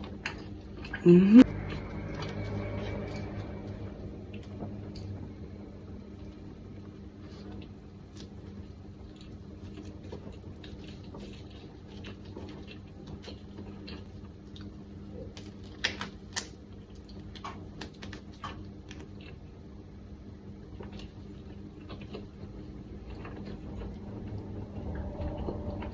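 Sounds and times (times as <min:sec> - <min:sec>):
steady low hum: 0:00.7 - 0:09.8
person chewing with wet clicks: 0:07.5 - 0:19.6, 0:20.6 - 0:24.4.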